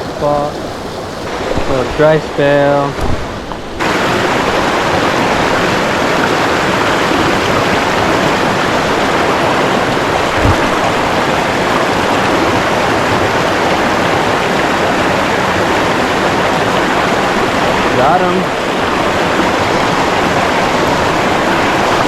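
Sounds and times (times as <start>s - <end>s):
creek water rushing: 0.0s - 22.0s
low thump: 2.9s - 3.8s, 10.2s - 11.2s.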